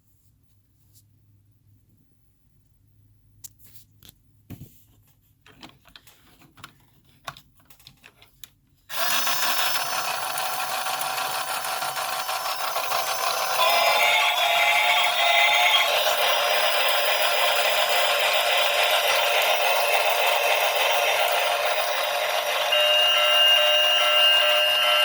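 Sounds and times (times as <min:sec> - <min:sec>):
toy train mechanical whir: 0:08.9 - 0:25.0.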